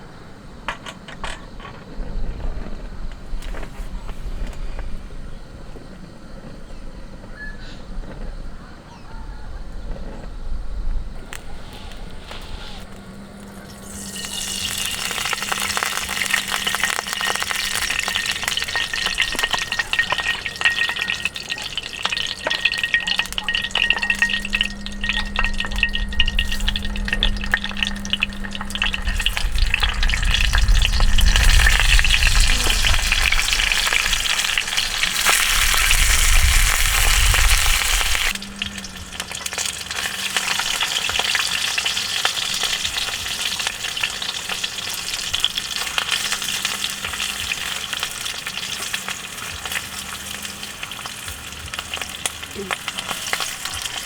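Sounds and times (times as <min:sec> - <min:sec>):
low rumble: 0:09.4 - 0:41.4
food sizzling in a pan: 0:11.2 - 0:54.0.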